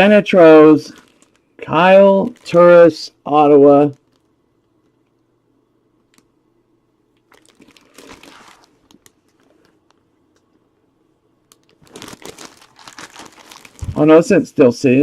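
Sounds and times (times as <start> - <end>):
packaging crinkling: 0.8 - 2.7, 3.9 - 5.2, 7.2 - 10.0, 11.5 - 14.3.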